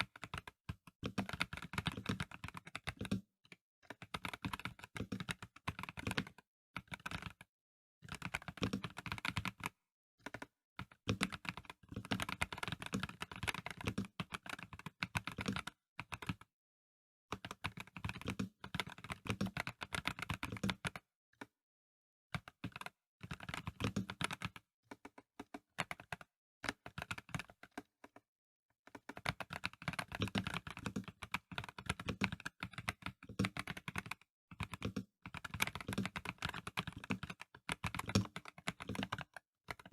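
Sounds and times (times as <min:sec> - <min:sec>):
typing on mechanical keyboard: 0:00.0 - 0:16.5, 0:17.3 - 0:21.5, 0:22.3 - 0:28.2, 0:28.8 - 0:39.9.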